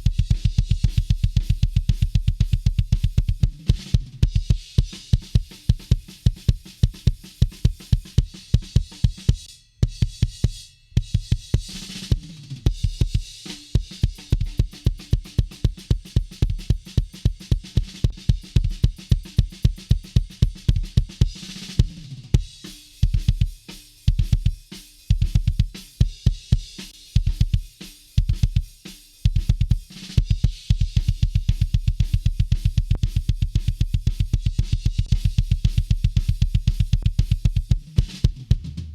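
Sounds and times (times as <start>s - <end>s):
fast kick drum hits: 0.0s - 4.6s, 29.3s - 38.9s.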